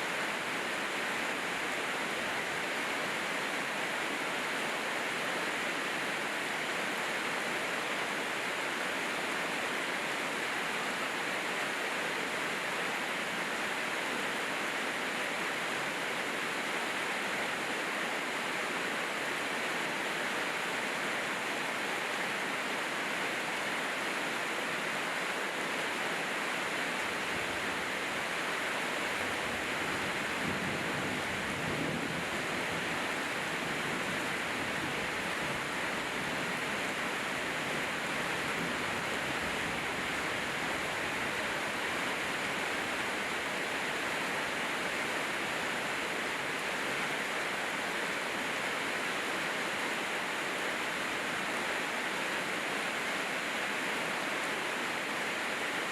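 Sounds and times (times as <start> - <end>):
heavy rain hissing: 19.8 - 52.8.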